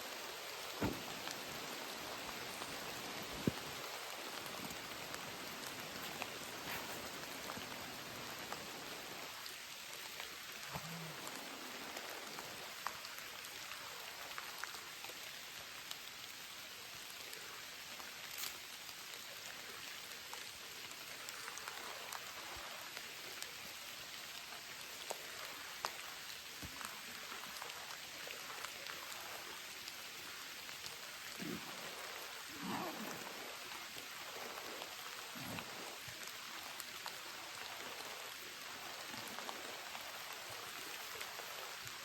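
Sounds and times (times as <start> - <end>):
rain falling: 0.0 - 42.0.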